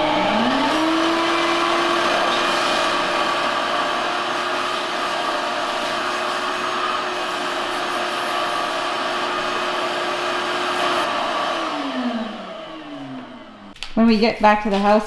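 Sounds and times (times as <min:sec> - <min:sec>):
vacuum cleaner running: 0:00.0 - 0:13.8.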